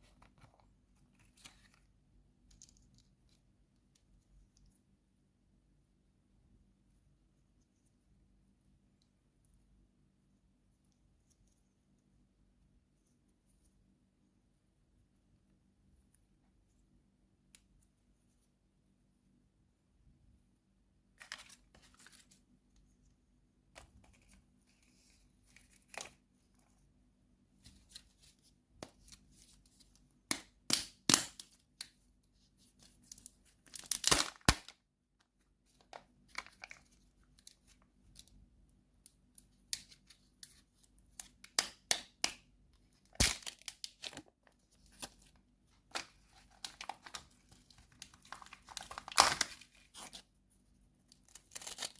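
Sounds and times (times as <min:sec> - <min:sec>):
candy wrapper crinkling: 0:33.1 - 0:34.7, 0:45.9 - 0:50.2
wrapper ripping: 0:33.7 - 0:34.7, 0:48.0 - 0:50.1.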